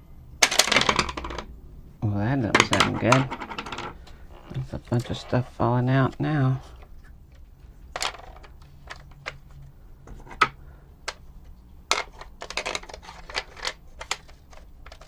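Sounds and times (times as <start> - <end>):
plastic parts clicking and knocking: 0.4 - 1.5, 2.4 - 5.2, 6.8 - 15.0.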